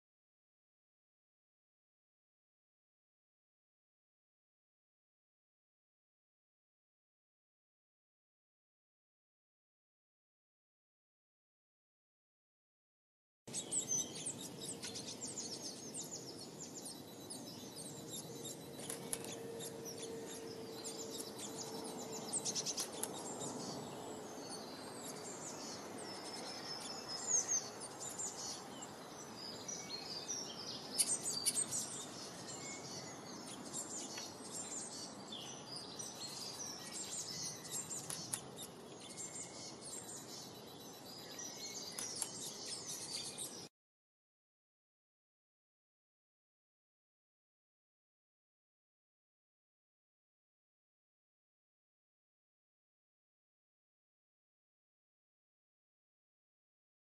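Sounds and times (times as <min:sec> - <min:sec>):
songbirds chirping: 0:13.5 - 0:43.7.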